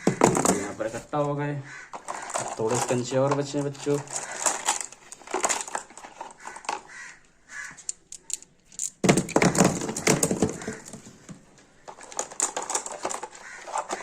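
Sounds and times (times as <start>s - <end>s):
marbles clattering together: 2.0s - 6.9s, 7.6s - 11.0s, 11.9s - 14.0s
glass marbles clicking: 7.8s - 10.0s.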